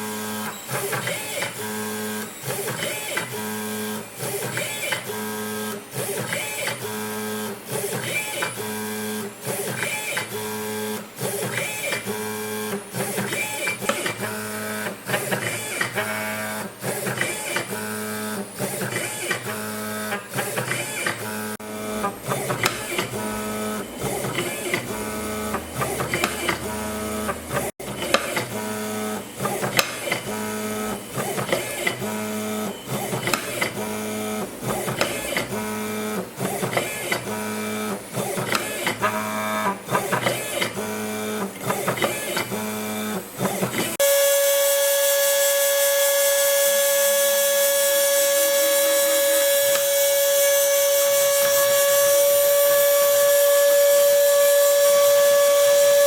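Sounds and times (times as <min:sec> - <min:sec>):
stepper motors whining: 0:11.2 - 0:56.0.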